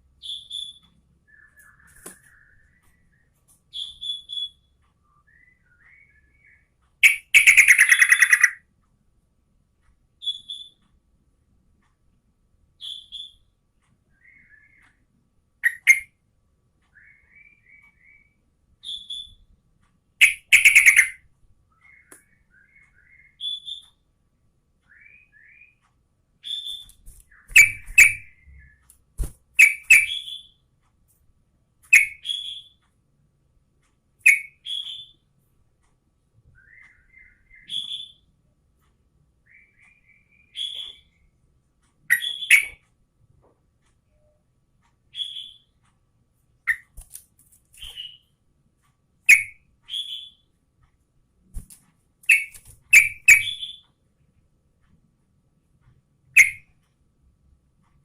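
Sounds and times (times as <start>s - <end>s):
bird twittering: 0.2s - 8.6s, 15.6s - 16.1s, 20.2s - 24.0s, 26.4s - 28.8s, 29.6s - 30.6s, 31.9s - 32.8s, 34.2s - 35.2s, 39.5s - 41.2s, 42.1s - 42.8s, 45.1s - 45.7s, 49.3s - 50.4s, 52.3s - 53.8s, 56.3s - 56.7s
bird calling: 7.0s - 8.6s, 20.2s - 21.2s.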